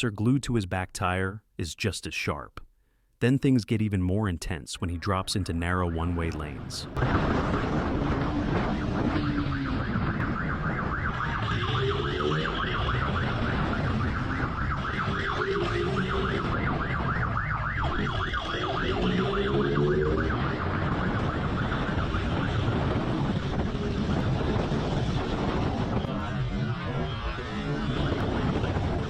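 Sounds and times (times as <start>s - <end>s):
police siren warbling: 5.6s - 29.0s
road and wind rumble: 5.9s - 29.0s
motorcycle engines revving: 7.0s - 29.0s.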